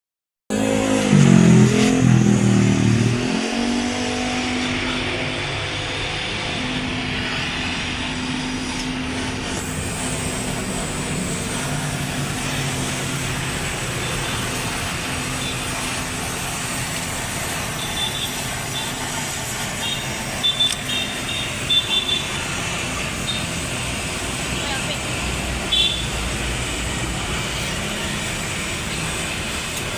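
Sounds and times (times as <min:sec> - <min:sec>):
car engine revving and idling: 0:00.5 - 0:29.9.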